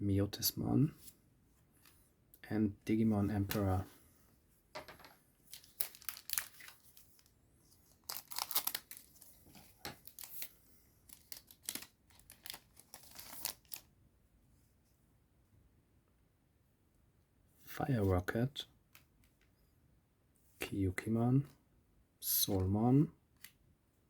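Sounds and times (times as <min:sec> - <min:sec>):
foil card pack tearing and crinkling: 0:05.5 - 0:07.3, 0:08.0 - 0:09.4, 0:10.0 - 0:10.5, 0:11.1 - 0:13.9.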